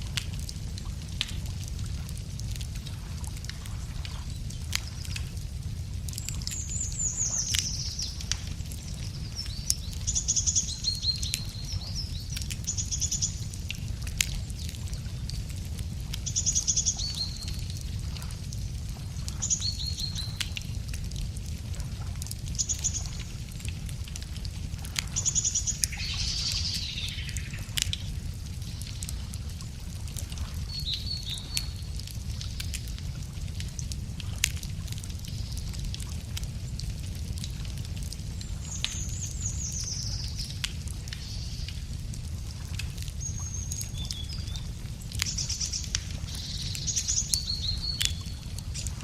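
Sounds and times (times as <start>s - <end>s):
steady low rumble: 0.0s - 30.7s
wood fire crackling and popping: 0.0s - 49.0s.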